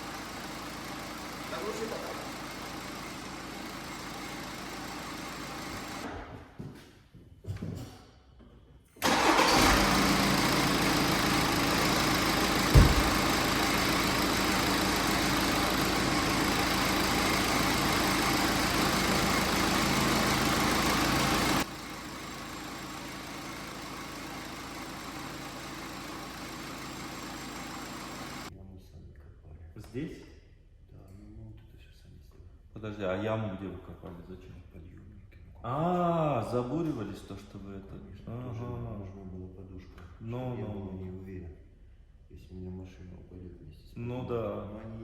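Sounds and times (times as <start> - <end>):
car engine starting and running: 0.0 - 6.1, 9.0 - 28.5
short thump: 12.7 - 13.2.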